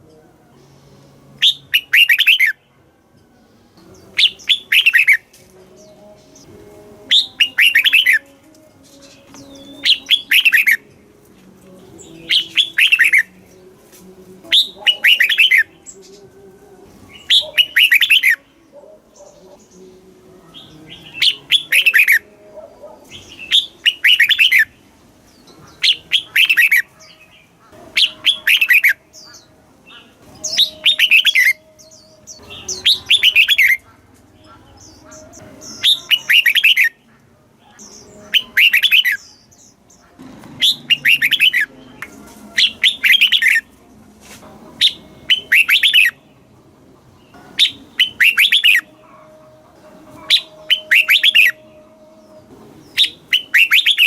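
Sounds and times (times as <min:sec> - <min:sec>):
bird singing quick falling notes: 0:40.6 - 0:43.6.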